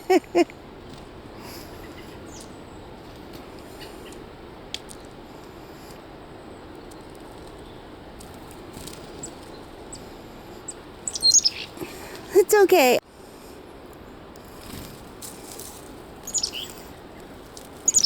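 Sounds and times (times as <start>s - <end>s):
low background noise: 0.0s - 18.0s
faint high bird chirps: 10.6s - 11.9s, 16.2s - 16.8s.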